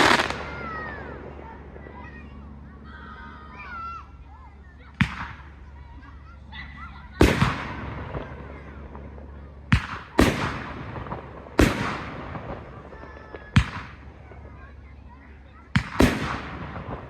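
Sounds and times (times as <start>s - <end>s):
fireworks bangs: 0.0s - 2.3s, 4.9s - 5.6s, 7.1s - 14.7s, 15.6s - 17.0s.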